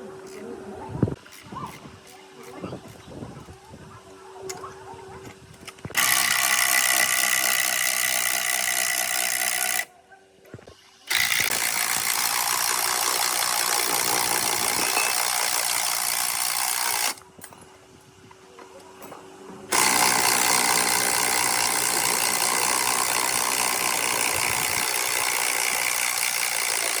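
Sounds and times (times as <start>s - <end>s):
power tool running: 5.9s - 9.9s, 11.1s - 17.2s, 19.7s - 27.0s.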